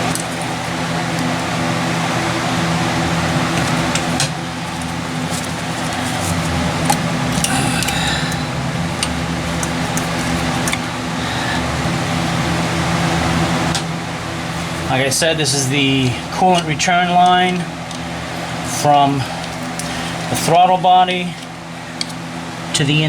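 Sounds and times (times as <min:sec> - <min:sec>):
cooling fan humming: 0:00.0 - 0:23.0
hose fitting squeaking: 0:09.0 - 0:11.6.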